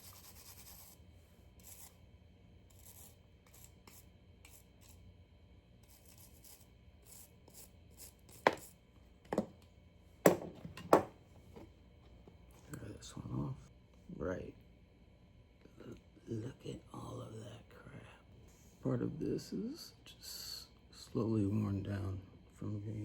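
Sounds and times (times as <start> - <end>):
hard object knocking: 8.4 - 8.7, 9.3 - 9.6, 10.2 - 11.7.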